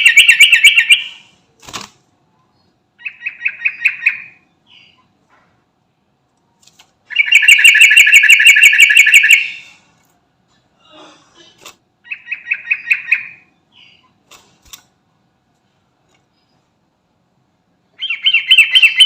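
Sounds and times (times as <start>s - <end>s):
bulbul calling in fast repeated notes: 7.1s - 9.6s.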